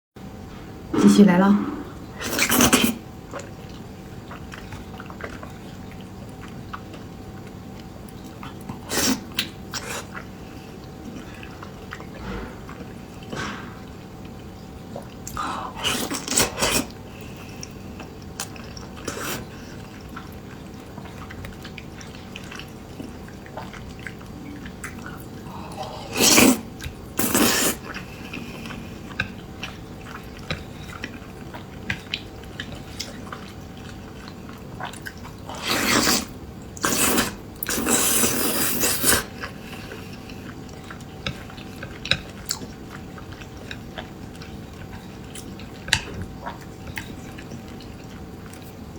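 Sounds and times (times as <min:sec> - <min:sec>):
wet chewing: 0:02.0 - 0:48.9.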